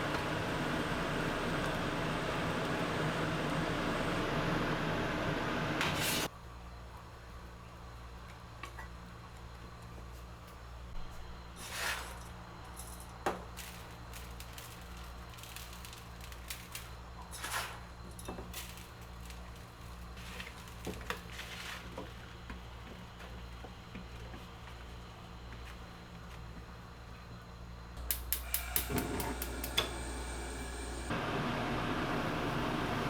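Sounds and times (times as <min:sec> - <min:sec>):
steady low hum: 0:27.7 - 0:33.0.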